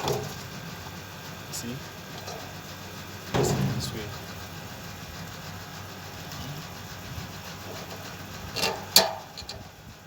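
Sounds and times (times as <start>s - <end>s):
steady low hum: 0.0s - 10.0s
metal parts knocking: 3.3s - 4.3s.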